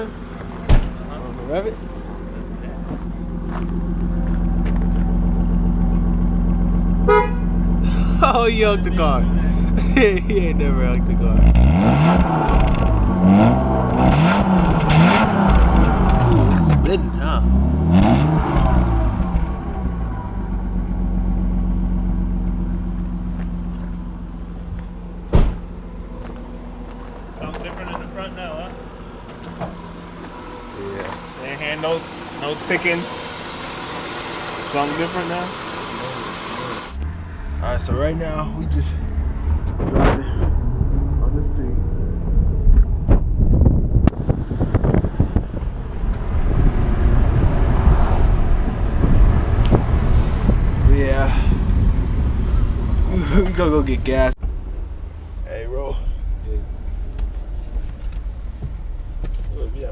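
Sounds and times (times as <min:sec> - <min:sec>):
car engine idling: 0:00.0 - 0:11.4, 0:18.5 - 0:46.6
sharp thump: 0:00.6 - 0:01.0, 0:25.3 - 0:25.8, 0:42.8 - 0:45.4
wind buffeting microphone: 0:39.5 - 0:53.1.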